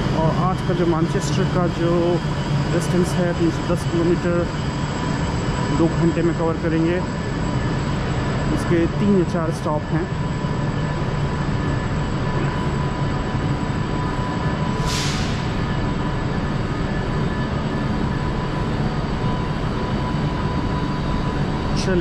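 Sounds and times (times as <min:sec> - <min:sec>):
electric train equipment humming: 0:00.0 - 0:22.0
air hiss: 0:14.8 - 0:15.6.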